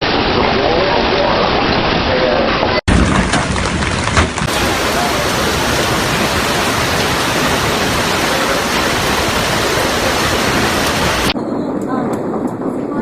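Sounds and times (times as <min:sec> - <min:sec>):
hailstones knocking: 0:02.9 - 0:11.4
heavy hail and rain: 0:02.9 - 0:11.4.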